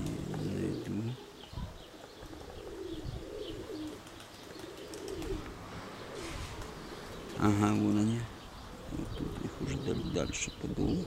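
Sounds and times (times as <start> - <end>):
pigeons cooing: 0.0 - 11.0
wind rumbling on microphone: 2.6 - 3.7.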